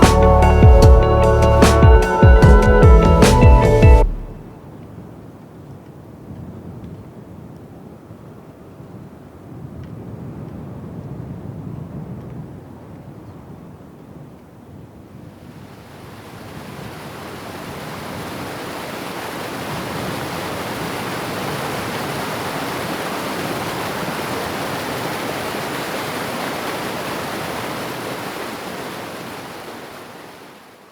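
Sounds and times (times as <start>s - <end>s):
running water rushing: 15.5s - 30.9s.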